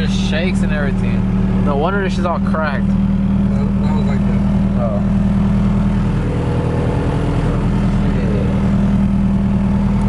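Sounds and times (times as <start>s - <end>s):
loud car engine idling: 0.0s - 10.0s.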